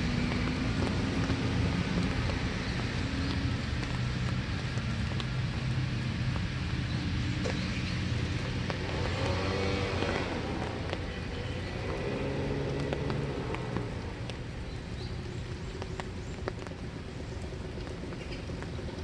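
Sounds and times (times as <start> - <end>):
car engine hum passing: 0.0 - 14.6
raindrops tapping: 0.0 - 19.0
steady rain: 0.0 - 19.0.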